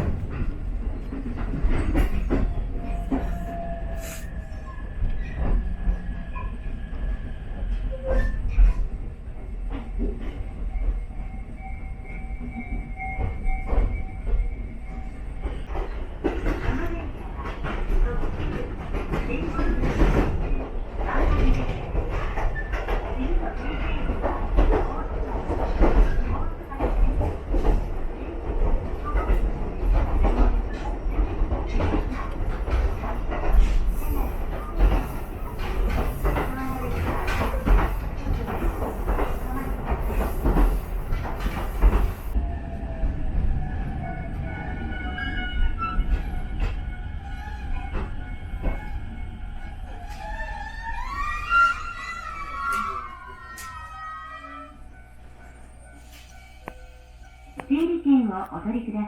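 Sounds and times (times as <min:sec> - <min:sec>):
electric train rumbling: 0:00.0 - 0:59.0
wheels squealing: 0:43.8 - 0:54.9.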